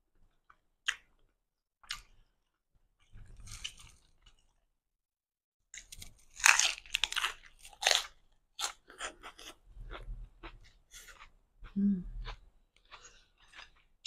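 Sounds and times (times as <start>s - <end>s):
crunchy chewing: 3.0s - 4.5s, 5.8s - 14.0s.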